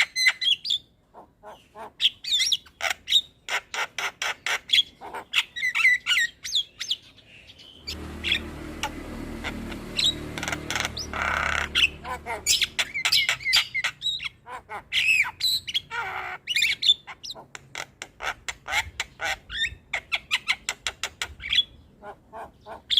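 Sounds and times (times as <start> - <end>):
bird singing with clicks and whistles: 2.0 - 14.4, 15.0 - 21.9
steady low hum: 7.8 - 13.1.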